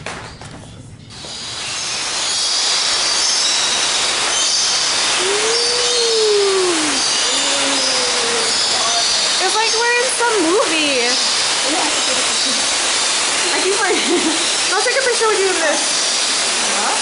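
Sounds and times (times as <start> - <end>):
falling water hiss: 1.1 - 17.0
bird chirps: 1.6 - 12.6.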